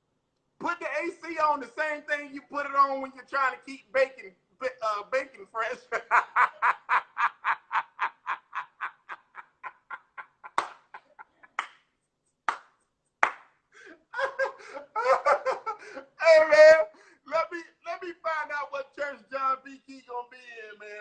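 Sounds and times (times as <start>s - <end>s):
man talking: 0.6s - 6.6s, 14.2s - 21.0s
man laughing: 5.3s - 11.6s, 13.8s - 18.6s.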